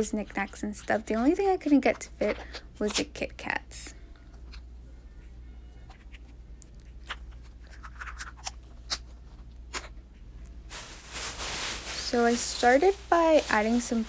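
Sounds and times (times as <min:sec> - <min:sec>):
small items clicking and crinkling: 0:00.0 - 0:03.5
steady rustle: 0:10.7 - 0:14.0.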